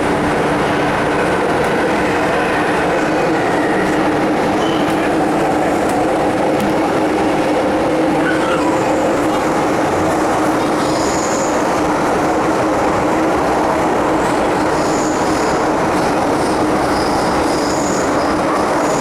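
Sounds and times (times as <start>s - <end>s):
train wheels rumbling in tunnel: 0.0s - 19.0s.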